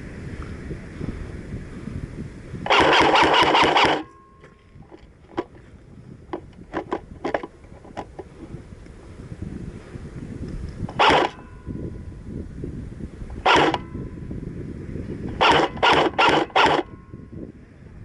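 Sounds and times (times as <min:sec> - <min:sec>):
wind rumble on microphone: 0:00.0 - 0:18.0
airsoft gun rapid burst: 0:02.7 - 0:04.1, 0:11.0 - 0:11.4, 0:13.4 - 0:13.8, 0:15.4 - 0:16.8.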